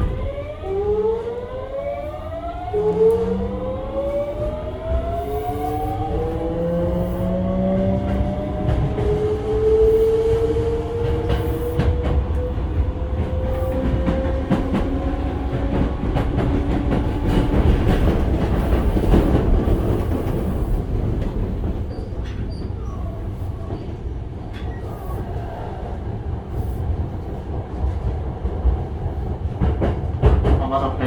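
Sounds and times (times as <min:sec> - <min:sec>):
train inverter whine: 0:00.0 - 0:22.1
wheel and rail rumble: 0:00.0 - 0:31.0
clacks over rail joints: 0:29.4 - 0:31.0.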